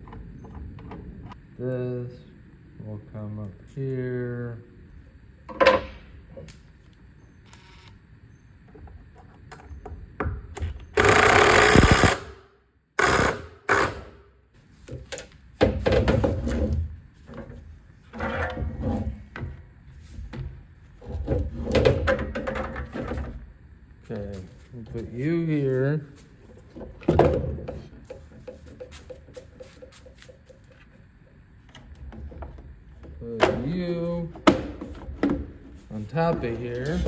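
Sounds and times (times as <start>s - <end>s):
loud noisy burst: 11.0s - 12.3s.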